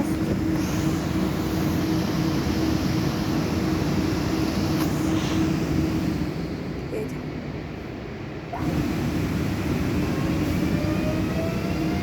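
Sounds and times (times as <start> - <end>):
electric train rumble and hiss: 0.0 - 12.0
train drive hum: 0.0 - 12.0.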